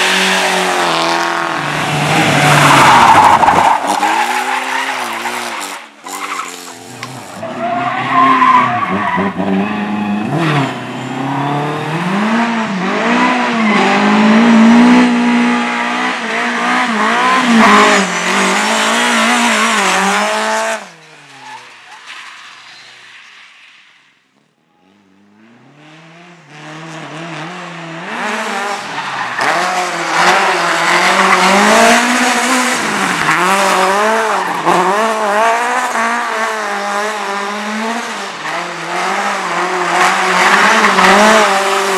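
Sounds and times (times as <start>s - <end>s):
race car engine revving: 25.3s - 41.9s.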